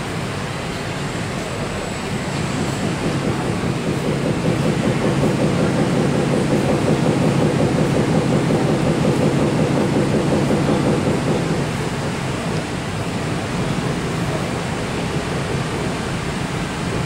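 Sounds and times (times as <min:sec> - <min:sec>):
train rumbling through station: 0:00.0 - 0:17.0.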